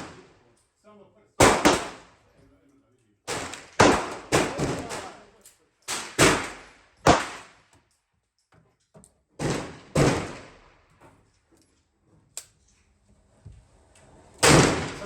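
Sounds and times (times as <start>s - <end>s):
gunshots: 0.0s - 0.3s, 1.4s - 2.2s, 3.3s - 5.3s, 5.9s - 7.6s, 9.4s - 10.8s, 14.4s - 15.0s.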